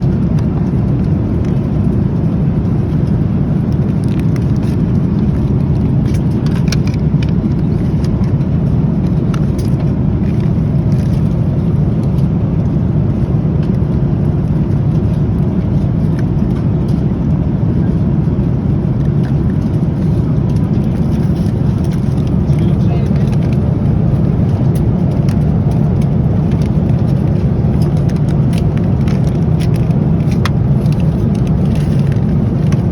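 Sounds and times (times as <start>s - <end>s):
airliner cabin rumble: 0.0s - 32.9s.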